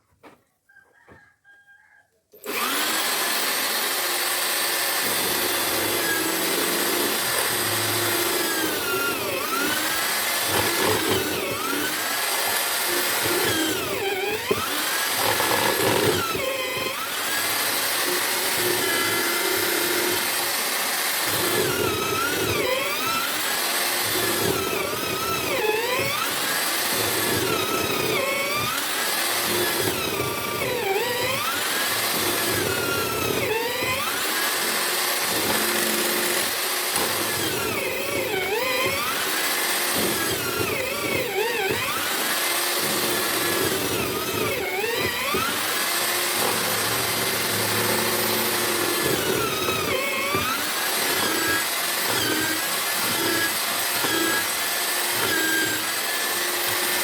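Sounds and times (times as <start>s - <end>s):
mortiser motor whine: 2.3s - 57.0s.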